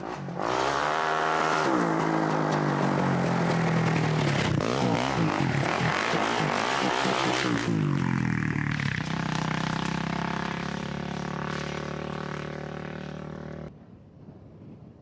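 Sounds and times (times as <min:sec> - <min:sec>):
quad engine: 0:00.0 - 0:13.7
faint wind noise: 0:13.3 - 0:15.0.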